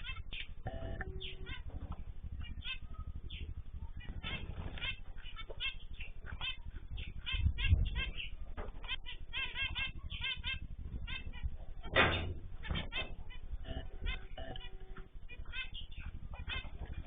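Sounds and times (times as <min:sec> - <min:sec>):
cage birds chirping: 0:00.0 - 0:17.0
fluttering wingbeats: 0:00.0 - 0:17.0.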